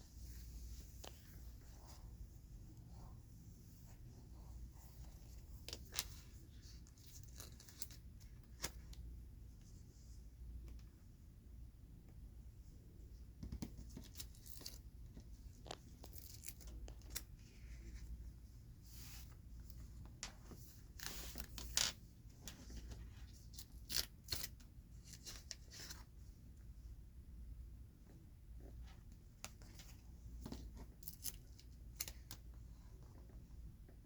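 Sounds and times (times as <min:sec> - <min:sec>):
cards being handled: 0:05.0 - 0:09.0.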